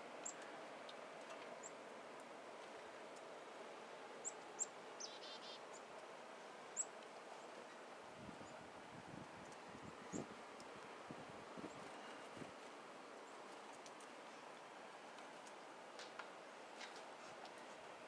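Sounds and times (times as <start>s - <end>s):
soft outdoor hiss: 0.0s - 18.0s
bird chirping trill: 4.2s - 5.8s.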